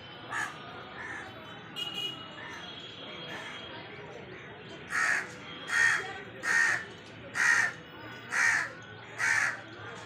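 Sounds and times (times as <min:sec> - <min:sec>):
crow cawing: 0:00.3 - 0:01.2, 0:04.9 - 0:09.6.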